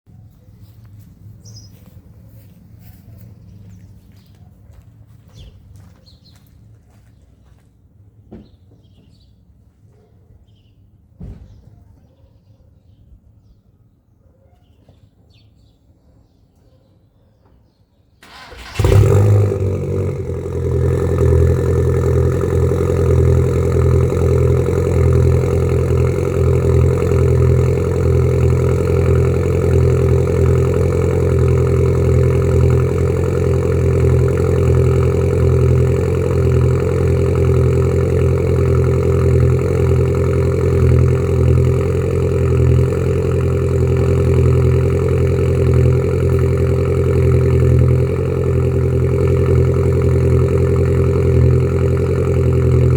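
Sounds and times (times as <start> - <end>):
car engine cranking and idling: 18.2 - 52.9.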